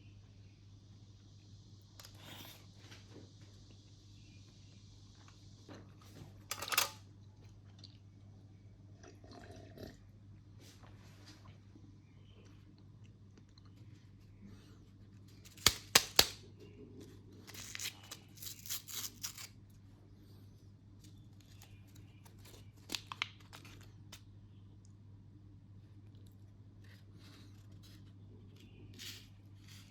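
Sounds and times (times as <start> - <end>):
plastic tearing and crinkling: 15.4 - 16.4, 17.4 - 19.6, 21.4 - 24.2
plastic packet snapping: 15.5 - 16.4, 22.8 - 24.2.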